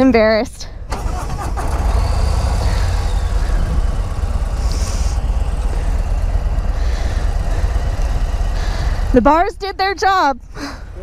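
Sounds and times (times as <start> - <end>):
motorcycle engine idling: 1.0 - 9.7.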